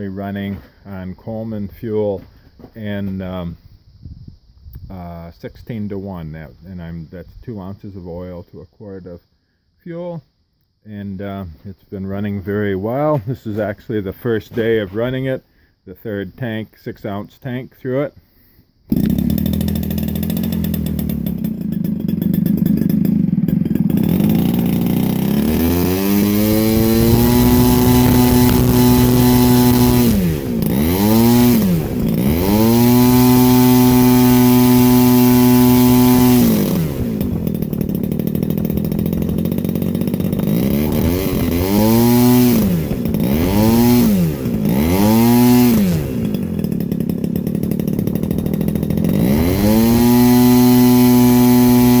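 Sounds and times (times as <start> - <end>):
model aircraft engine revving: 18.9 - 52.0.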